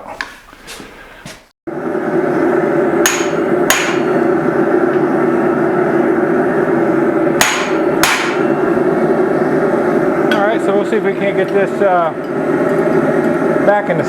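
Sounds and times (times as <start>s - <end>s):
loud steady background noise: 1.7s - 14.0s
hammer striking hot steel: 3.0s - 4.3s, 7.3s - 8.8s, 10.2s - 13.4s.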